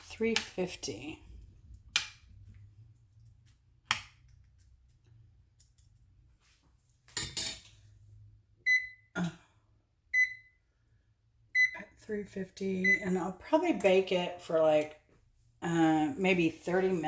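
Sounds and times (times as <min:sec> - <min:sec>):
oven keypad beeps: 0:08.6 - 0:09.1, 0:10.1 - 0:10.6, 0:11.6 - 0:11.8, 0:12.8 - 0:13.2.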